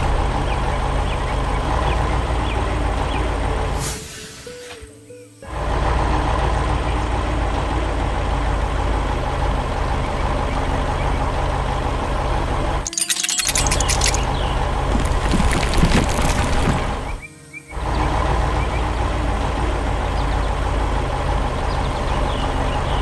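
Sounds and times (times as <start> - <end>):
crackling clatter: 12.9 - 17.2
rattling: 12.9 - 17.2.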